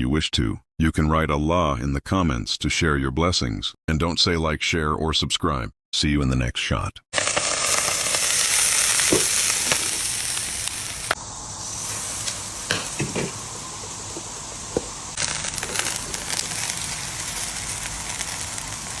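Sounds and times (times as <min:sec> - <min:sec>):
popcorn kernels popping: 0:07.2 - 0:11.2, 0:12.3 - 0:19.0
popcorn sizzling in hot oil: 0:07.2 - 0:19.0.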